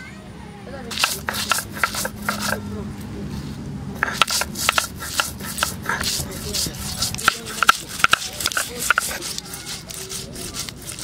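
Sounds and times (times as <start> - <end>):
stone grinding on stone: 0.9 - 2.6, 4.0 - 11.0.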